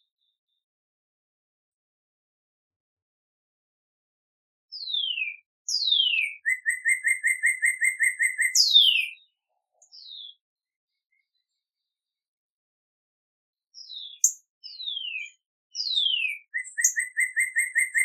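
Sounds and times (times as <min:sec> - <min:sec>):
songbird singing: 0:04.7 - 0:11.9, 0:13.8 - 0:18.0.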